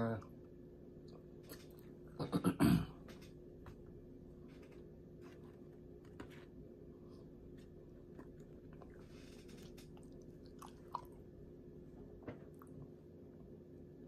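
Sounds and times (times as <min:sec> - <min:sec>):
person chewing fries: 0:07.5 - 0:11.3.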